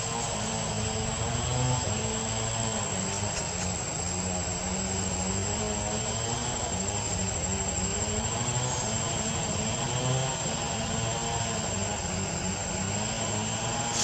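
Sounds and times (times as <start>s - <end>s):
engine drone: 0.0s - 14.0s.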